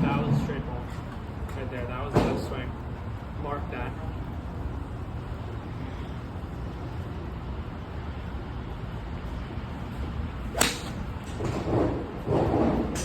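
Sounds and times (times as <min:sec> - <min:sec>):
low background noise: 0:00.0 - 0:13.0
golf club striking ball: 0:10.5 - 0:11.6.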